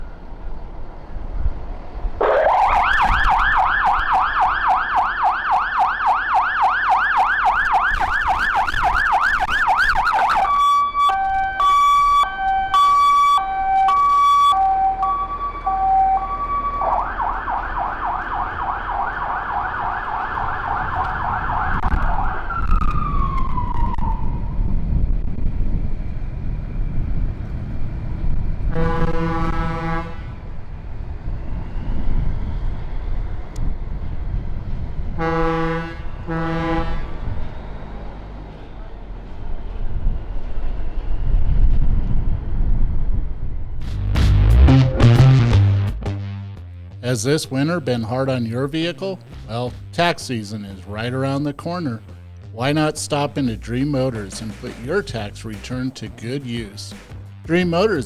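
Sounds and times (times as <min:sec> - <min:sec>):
truck engine rumbling: 0:00.0 - 0:58.0
fire truck siren: 0:01.8 - 0:43.7
horn blast: 0:28.7 - 0:30.6, 0:35.2 - 0:37.4, 0:43.8 - 0:48.1.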